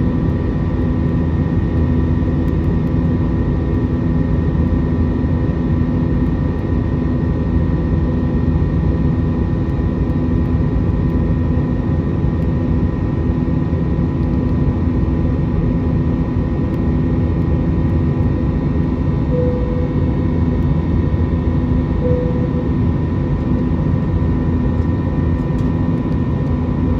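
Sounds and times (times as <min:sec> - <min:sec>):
constant hum: 0:00.0 - 0:26.9
jet engine and airflow noise: 0:00.0 - 0:26.9
short beeps: 0:19.4 - 0:20.5, 0:22.0 - 0:23.0.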